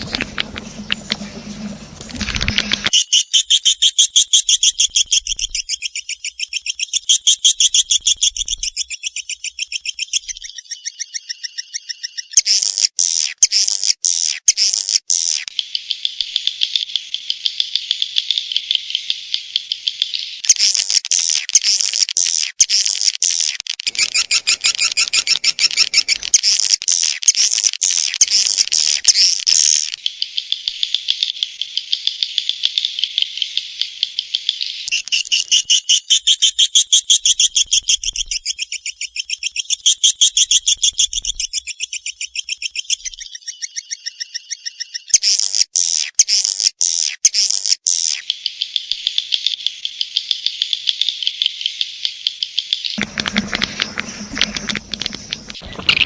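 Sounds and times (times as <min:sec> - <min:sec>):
swiftlets twittering chirps: 0:00.0 - 0:04.0, 0:23.9 - 0:27.2, 0:53.0 - 0:56.0.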